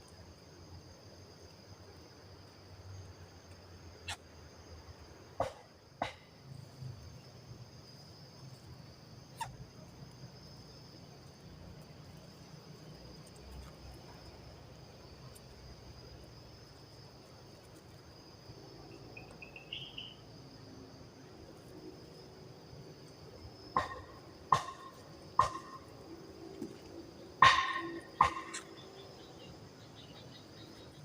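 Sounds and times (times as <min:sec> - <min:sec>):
high-pitched insect chorus: 0:00.0 - 0:31.0
sharp knock: 0:23.8 - 0:25.8, 0:27.4 - 0:28.7.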